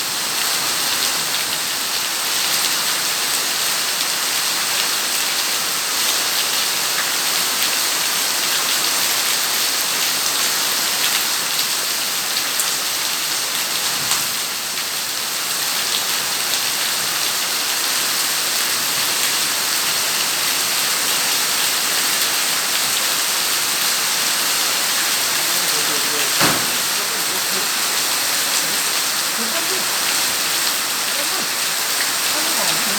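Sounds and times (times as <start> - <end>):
rain falling: 0.0 - 32.9
raindrop ticks: 25.2 - 30.4.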